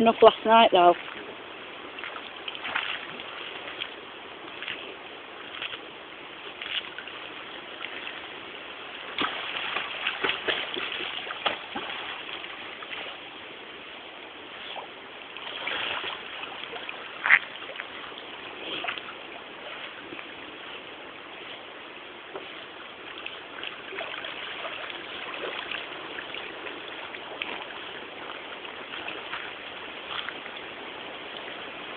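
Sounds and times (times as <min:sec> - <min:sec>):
background hiss: 0:00.0 - 0:31.9
dog splashing in water: 0:09.0 - 0:13.2, 0:15.4 - 0:18.0.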